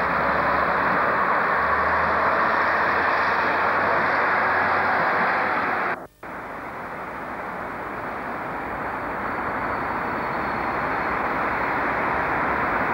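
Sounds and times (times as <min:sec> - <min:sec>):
train approaching: 0:00.0 - 0:12.9.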